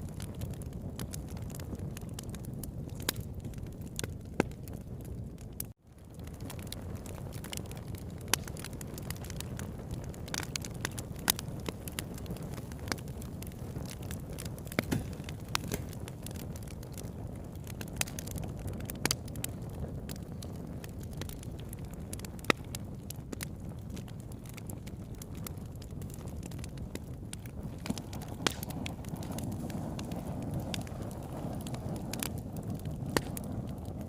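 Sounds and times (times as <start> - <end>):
campfire wood crackling and popping: 0.0 - 34.0
low fire rush: 25.3 - 34.0.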